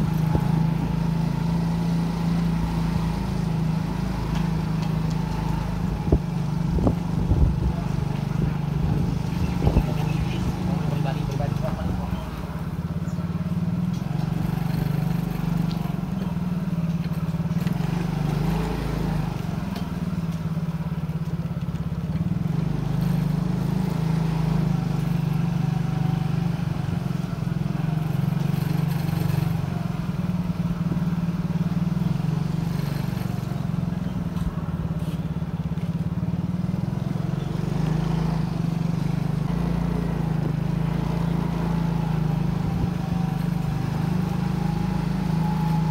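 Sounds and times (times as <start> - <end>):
motorcycle engine drone: 0.0 - 45.9
road and wind noise: 0.0 - 45.9.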